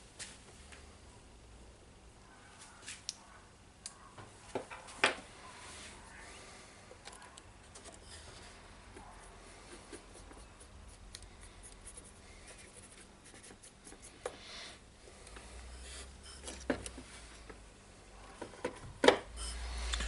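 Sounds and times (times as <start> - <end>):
brush scrubbing circuit board: 9.2 - 14.2.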